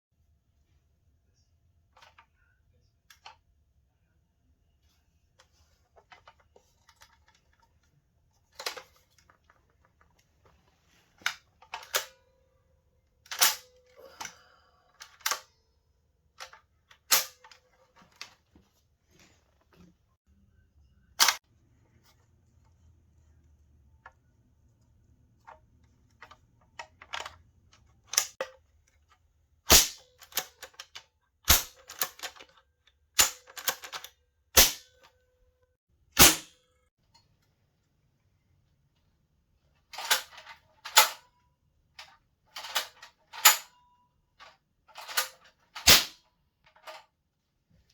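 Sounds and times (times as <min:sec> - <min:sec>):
toy cap rifle cracks: 0:29.7 - 0:30.5, 0:34.6 - 0:34.9, 0:36.2 - 0:36.5, 0:45.1 - 0:46.2.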